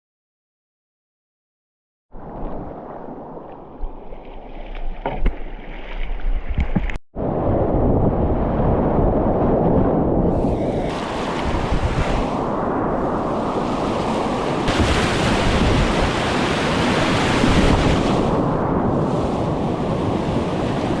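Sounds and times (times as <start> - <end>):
wind buffeting microphone: 6.2 - 21.0.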